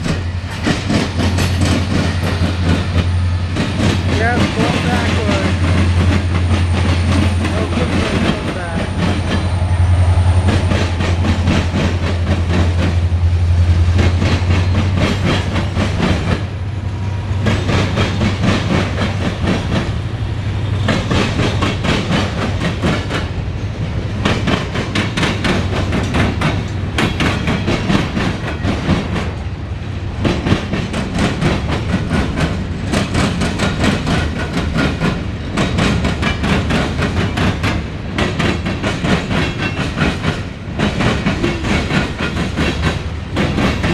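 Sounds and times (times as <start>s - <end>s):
train rumble: 0.0s - 43.9s
train wheels clicking over rail joints: 0.0s - 43.9s.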